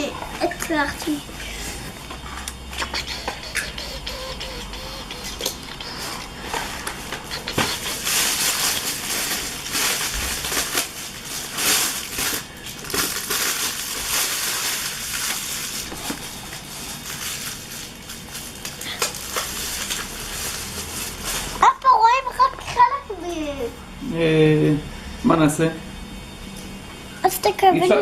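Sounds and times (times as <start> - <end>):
toys crunching and rustling: 2.2 - 21.6.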